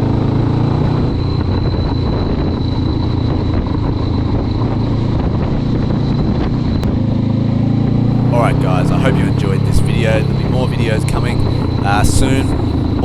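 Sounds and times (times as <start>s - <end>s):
motorcycle engine running: 5.6s - 13.0s.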